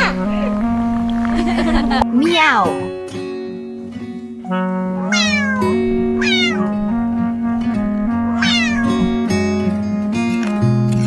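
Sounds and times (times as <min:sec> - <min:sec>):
soft acoustic guitar music: 0:00.0 - 0:11.0
cat meowing: 0:05.1 - 0:06.8, 0:08.4 - 0:09.2.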